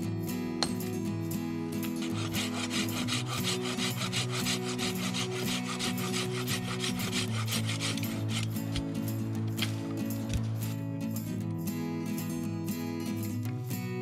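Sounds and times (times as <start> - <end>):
hand saw cutting wood: 1.8 - 10.0.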